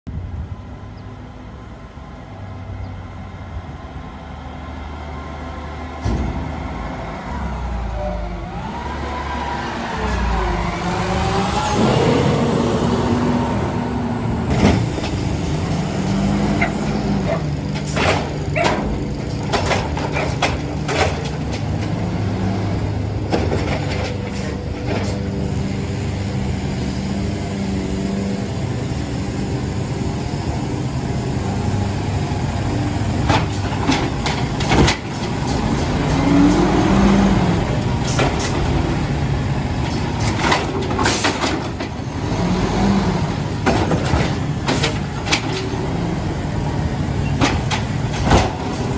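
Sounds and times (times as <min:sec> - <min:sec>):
garbage truck engine running: 0:03.4 - 0:48.9
knocks and clanks: 0:14.5 - 0:22.3, 0:23.2 - 0:25.4, 0:33.2 - 0:36.8, 0:37.8 - 0:39.1, 0:39.8 - 0:42.0, 0:43.5 - 0:45.8, 0:47.2 - 0:48.9.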